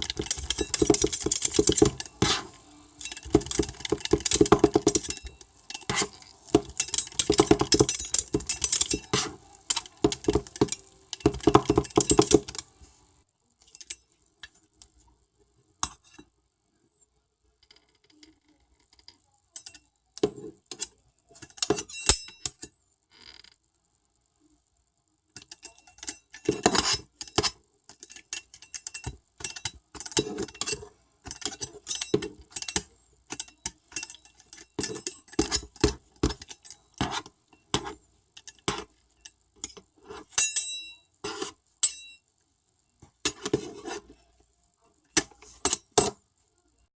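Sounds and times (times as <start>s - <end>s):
metal utensils tapping and scraping: 0.0s - 12.8s, 13.6s - 14.6s, 15.8s - 16.3s, 19.0s - 22.7s, 25.4s - 42.2s, 43.0s - 44.3s, 45.0s - 46.2s.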